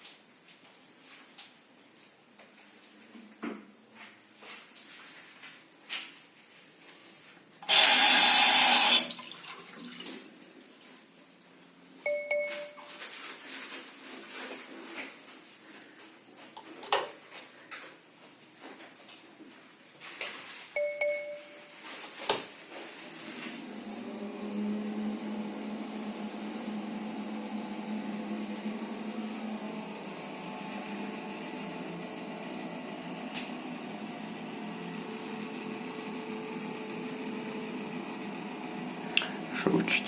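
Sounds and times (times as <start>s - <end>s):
short bell-like dings: 12.1s - 13.0s, 20.8s - 21.8s.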